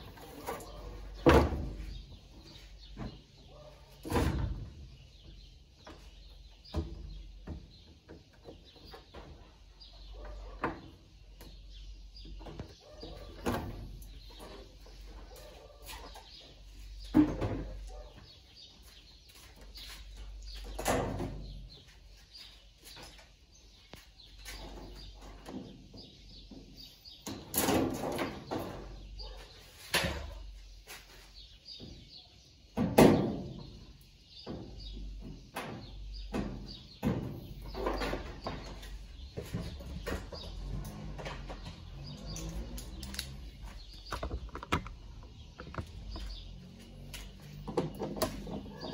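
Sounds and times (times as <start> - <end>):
tools and parts clattering: 37.0 - 48.9.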